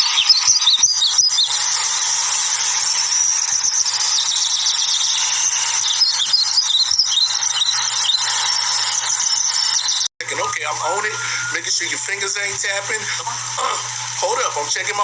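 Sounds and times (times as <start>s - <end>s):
many birds chirping: 0.0s - 10.1s.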